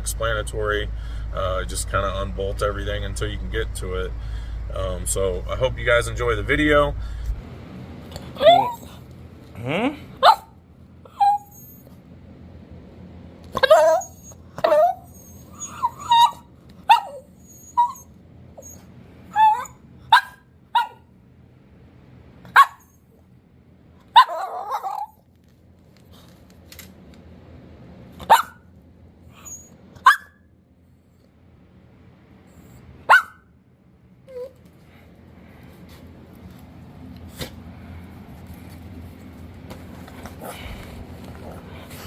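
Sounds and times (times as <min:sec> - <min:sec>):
dog barking: 0:10.2 - 0:10.6, 0:15.9 - 0:17.3, 0:19.4 - 0:21.0, 0:22.5 - 0:22.9, 0:24.1 - 0:25.2, 0:28.2 - 0:28.6, 0:30.0 - 0:30.4, 0:33.0 - 0:33.5.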